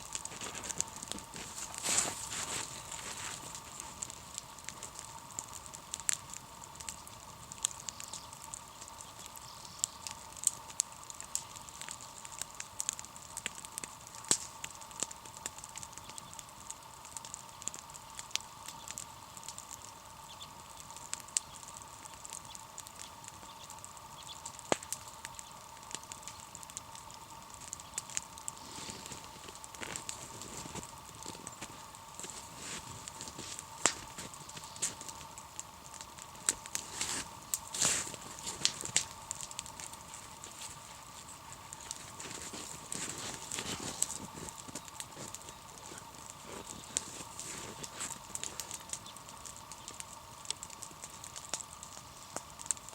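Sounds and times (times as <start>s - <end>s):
campfire crackling and popping: 0.0s - 52.9s
faint steady hum: 0.0s - 52.9s.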